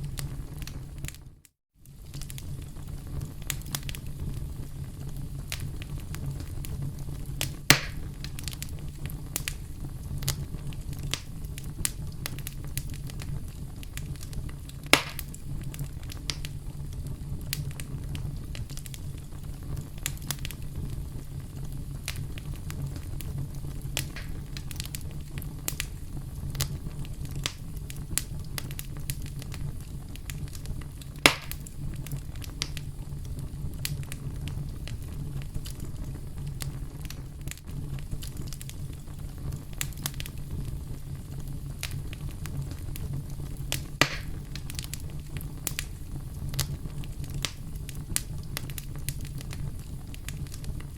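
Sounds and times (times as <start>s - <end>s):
campfire crackling: 0.0s - 50.9s
loud pops from fire: 0.0s - 50.9s.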